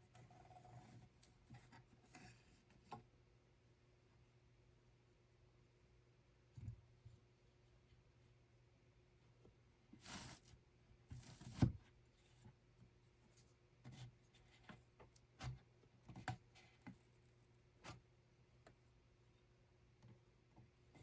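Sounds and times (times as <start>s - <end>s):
soft knocks and clicks of handled objects: 11.1s - 17.2s.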